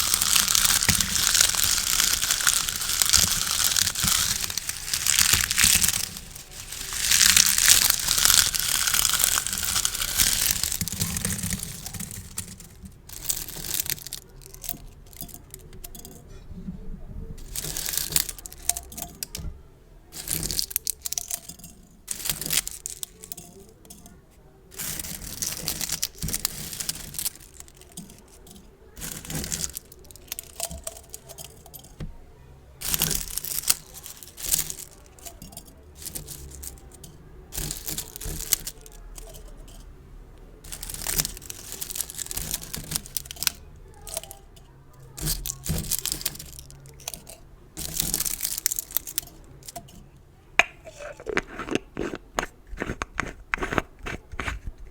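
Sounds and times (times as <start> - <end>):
gift bows crinkling: 0.0 - 16.1, 17.4 - 19.4, 20.1 - 23.7, 24.7 - 32.2, 32.8 - 39.8, 40.6 - 49.8, 50.6 - 54.9.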